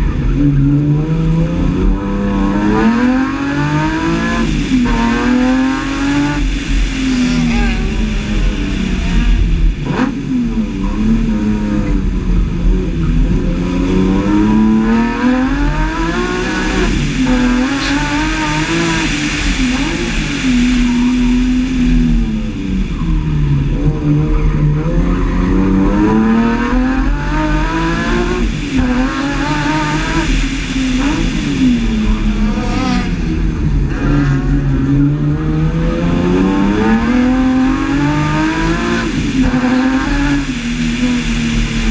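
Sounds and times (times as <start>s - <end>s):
car engine accelerating hard: 0.0s - 41.9s.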